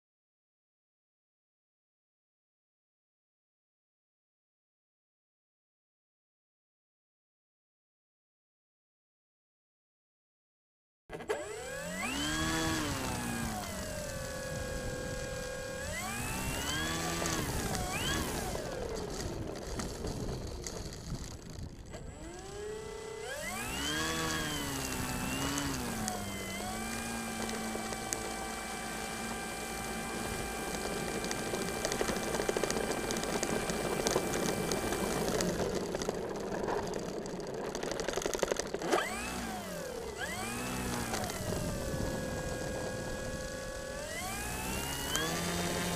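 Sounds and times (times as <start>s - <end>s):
rc plane motors whining: 11.2s - 45.9s.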